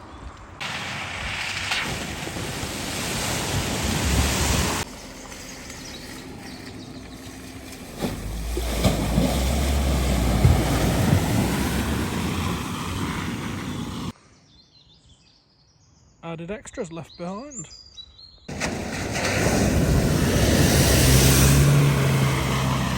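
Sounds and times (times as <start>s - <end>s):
water rushing and splashing: 0.6s - 14.2s, 18.5s - 22.9s
wind buffeting microphone: 2.1s - 14.1s, 18.5s - 22.9s.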